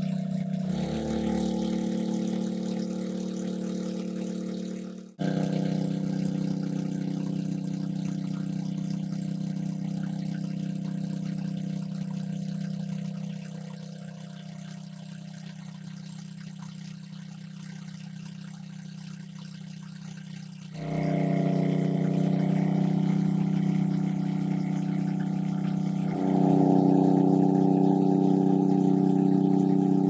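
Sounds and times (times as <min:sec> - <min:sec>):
small engine running: 0:00.0 - 0:30.0.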